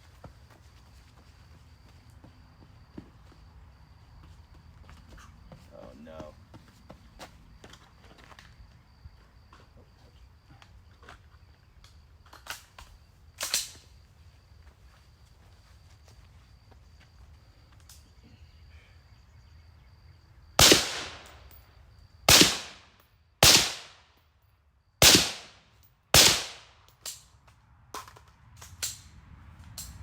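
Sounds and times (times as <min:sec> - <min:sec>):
gunshots with ringing echo: 0:20.6 - 0:21.6, 0:22.3 - 0:24.0, 0:25.0 - 0:26.8.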